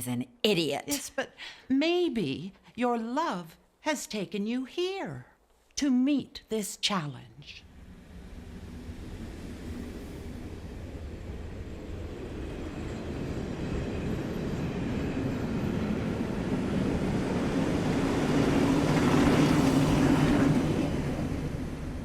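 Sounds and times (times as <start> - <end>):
train rumbling: 7.6 - 22.0.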